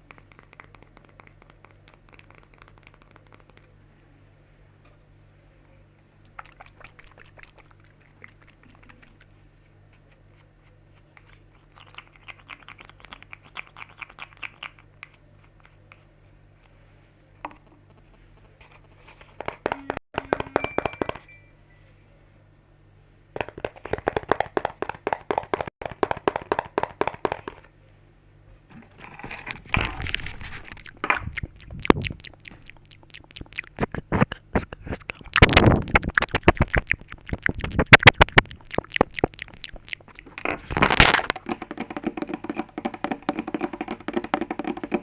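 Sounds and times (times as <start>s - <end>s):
quick tapping and clicking: 23.4s - 27.6s, 35.2s - 45.0s.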